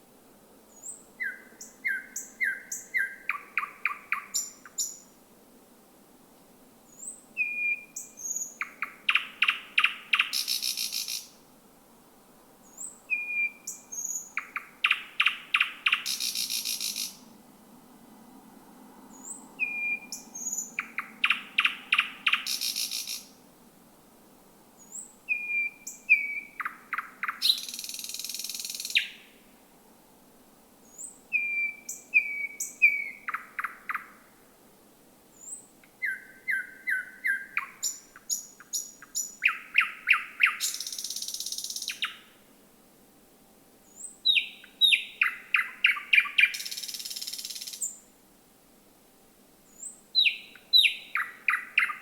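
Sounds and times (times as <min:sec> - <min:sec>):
thrush nightingale singing: 0:00.7 - 0:05.2, 0:06.9 - 0:11.4, 0:12.6 - 0:17.3, 0:19.1 - 0:23.4, 0:24.8 - 0:29.5, 0:30.8 - 0:34.3, 0:35.3 - 0:42.4, 0:43.8 - 0:48.1, 0:49.7 - 0:52.0.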